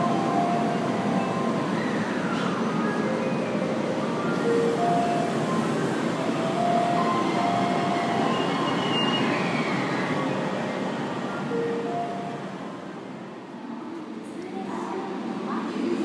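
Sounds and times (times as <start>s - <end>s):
electric train rumbling: 0.0s - 16.0s
faint brake squeals: 8.0s - 10.6s.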